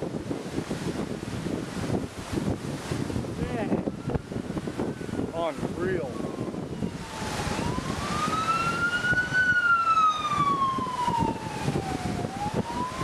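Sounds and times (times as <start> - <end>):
wind buffeting microphone: 0.0 - 13.0
warning siren wailing: 3.5 - 13.0.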